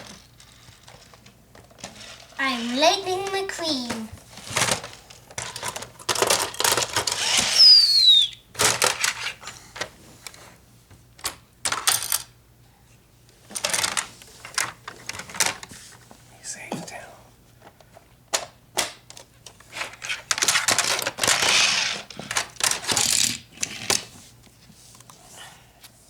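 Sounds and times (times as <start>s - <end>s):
toy cars clattering: 0.0s - 7.8s, 8.6s - 9.9s, 11.2s - 12.3s, 13.5s - 15.6s, 19.2s - 24.1s
falling whistle-like squeal: 7.4s - 8.4s.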